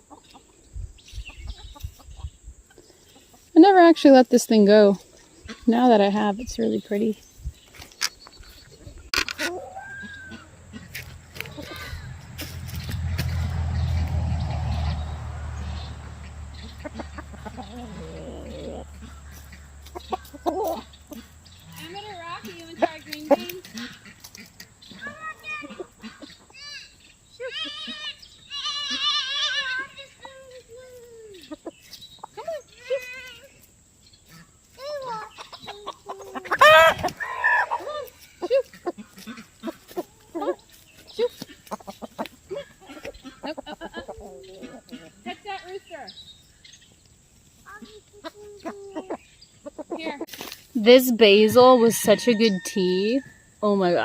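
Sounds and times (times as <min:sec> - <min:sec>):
chickens clucking: 0:00.0 - 0:54.0
loud chicken squawk: 0:09.4 - 0:12.2, 0:36.3 - 0:40.6.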